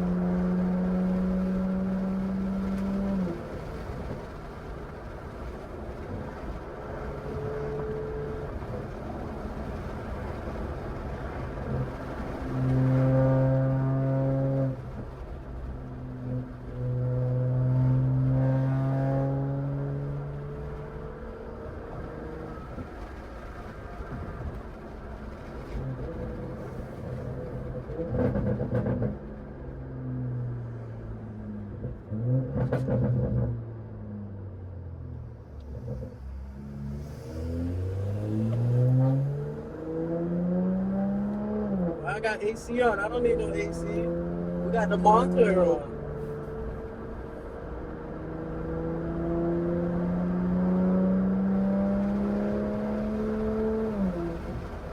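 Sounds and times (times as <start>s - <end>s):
car engine droning: 0.0s - 54.9s
exhaust crackles: 40.6s - 47.5s.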